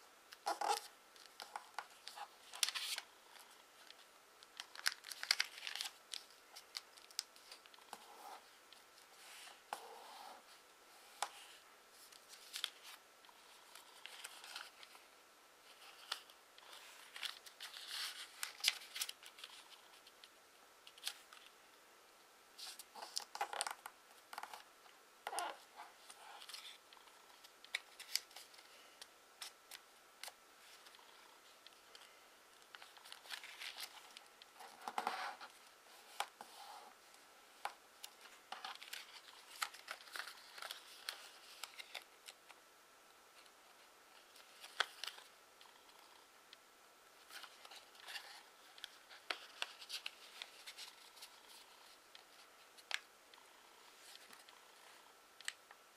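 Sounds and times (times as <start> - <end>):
paper fold clicks: 0.3 - 8.0
paper rustling and crinkling: 0.4 - 9.6, 10.5 - 21.5, 27.4 - 36.8, 37.6 - 42.4, 43.4 - 45.3, 47.2 - 53.1.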